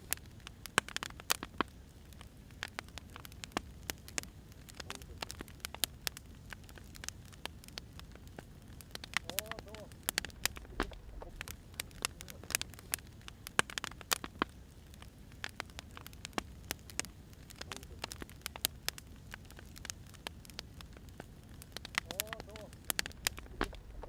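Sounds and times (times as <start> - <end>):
firewood crackling and popping: 0.0 - 24.0
steady low hiss: 0.0 - 24.0.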